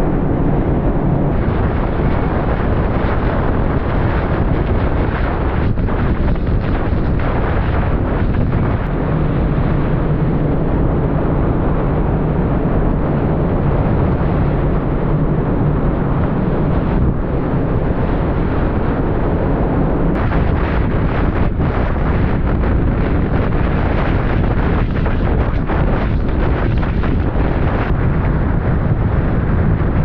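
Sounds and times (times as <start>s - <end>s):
strong wind blowing: 0.0s - 30.0s
wind buffeting microphone: 0.0s - 30.0s.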